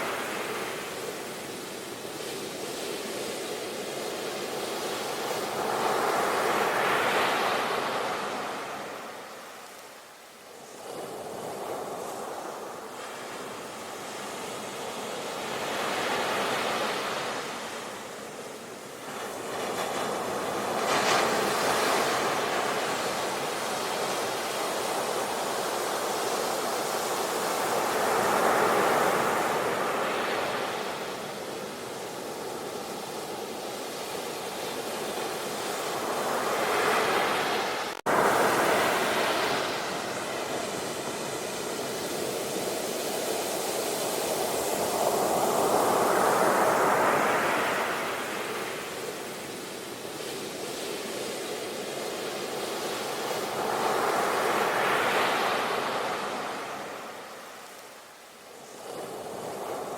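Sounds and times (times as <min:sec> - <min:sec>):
ocean waves breaking: 0:35.3 - 0:49.0.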